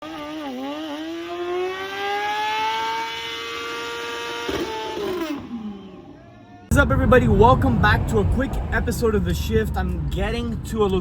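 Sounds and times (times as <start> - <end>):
high-revving engine: 0.0 - 6.0.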